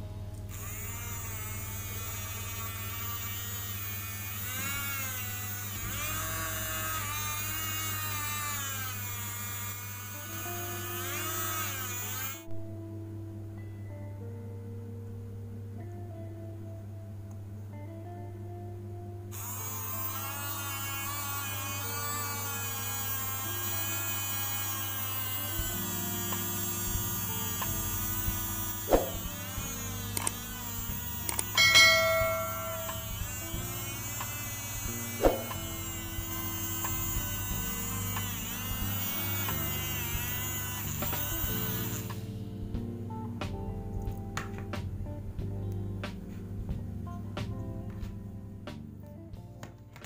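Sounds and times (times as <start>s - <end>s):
small motor buzzing whine: 0.0s - 12.5s, 19.3s - 42.4s
background music: 0.0s - 50.0s
ringing metallic clink: 31.6s - 33.1s.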